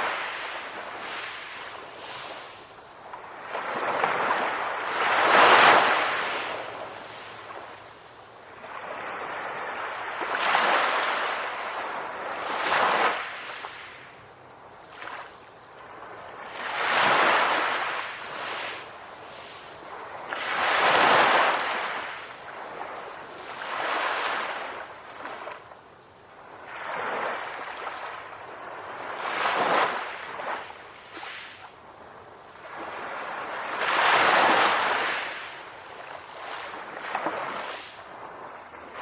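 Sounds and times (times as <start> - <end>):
ocean waves breaking: 0.0 - 14.1.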